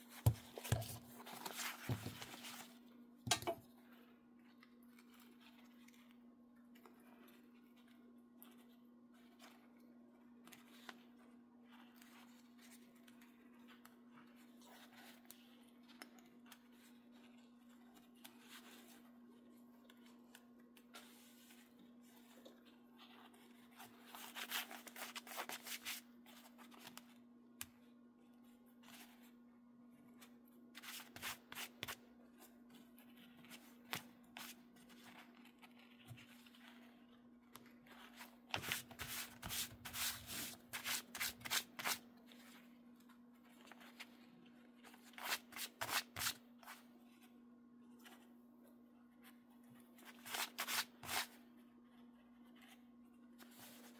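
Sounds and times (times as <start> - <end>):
hands rustling and scraping material: 0.0 - 3.1.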